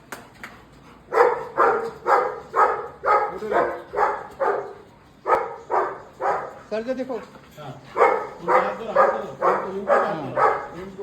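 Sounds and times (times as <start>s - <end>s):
dog barking: 1.1s - 6.6s, 8.0s - 10.9s.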